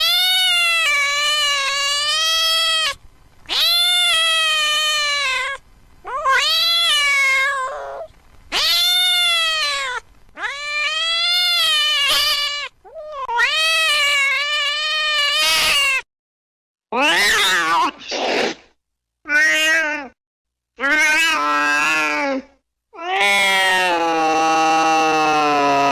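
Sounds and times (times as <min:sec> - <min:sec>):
cat meowing: 0:00.0 - 0:16.1, 0:17.0 - 0:18.1, 0:19.3 - 0:20.2, 0:20.8 - 0:25.9.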